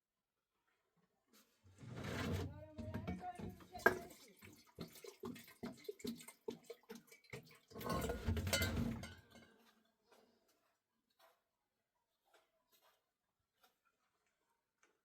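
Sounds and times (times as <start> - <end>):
water splashing and pouring: 3.6 - 9.2.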